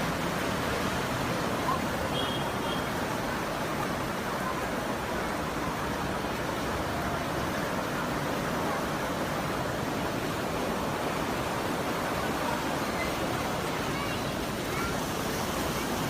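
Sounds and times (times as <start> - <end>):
river rushing: 0.0 - 16.0.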